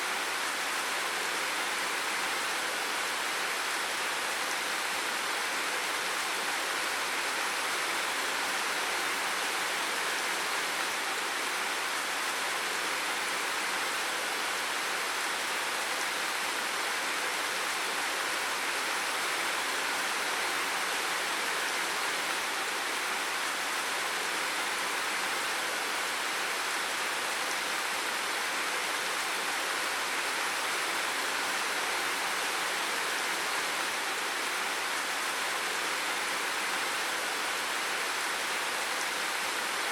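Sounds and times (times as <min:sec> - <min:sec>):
steady water hiss: 0:00.0 - 0:39.9.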